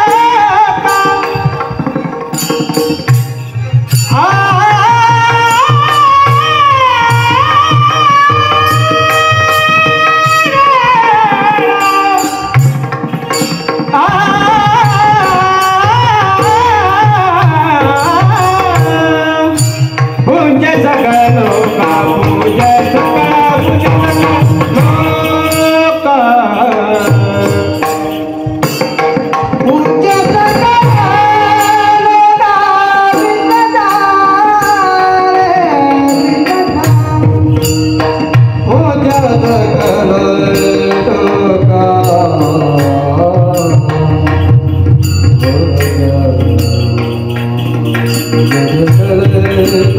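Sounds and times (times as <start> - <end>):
hand drum: 0.0 - 49.9
metallic percussion strikes: 0.0 - 49.9
person singing devotional song: 0.0 - 49.9.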